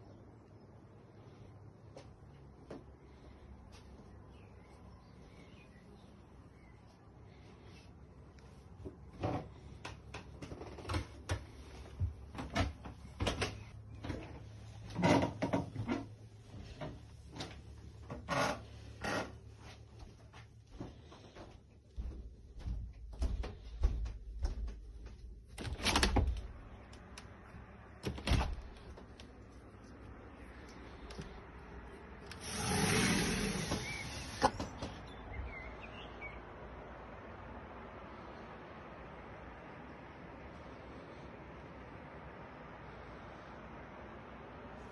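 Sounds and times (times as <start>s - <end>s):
swell of outdoor noise: 26.5s - 44.9s
faint bird chirps: 33.7s - 36.5s.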